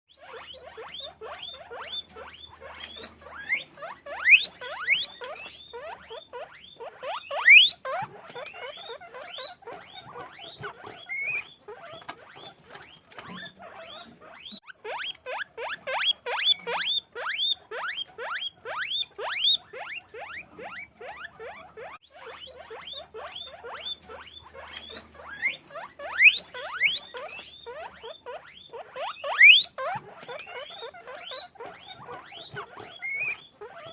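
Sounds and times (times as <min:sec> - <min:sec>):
guinea pigs wheeking: 0:00.1 - 0:33.9.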